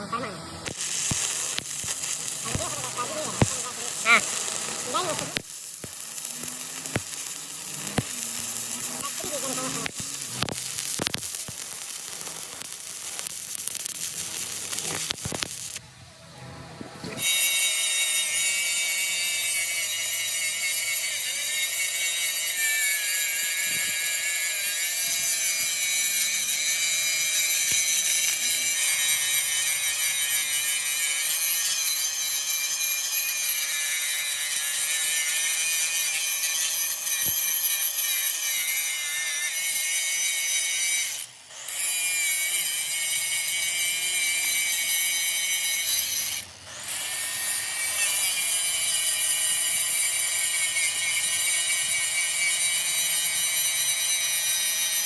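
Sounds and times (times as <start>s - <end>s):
power tool grinding metal: 0.1s - 15.8s, 17.2s - 55.0s.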